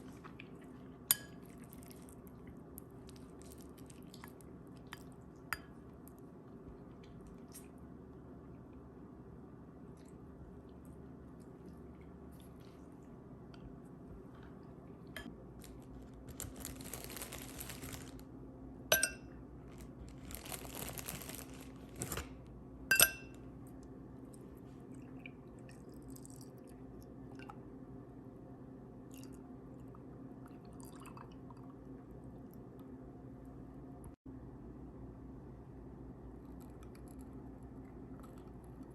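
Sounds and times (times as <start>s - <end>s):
low steady hum: 0.0s - 38.9s
glass clinking: 18.9s - 19.3s, 22.9s - 23.4s.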